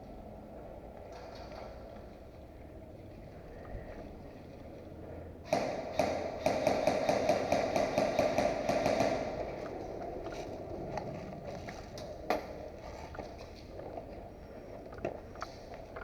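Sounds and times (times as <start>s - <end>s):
airsoft gun rapid shots: 5.5s - 9.6s.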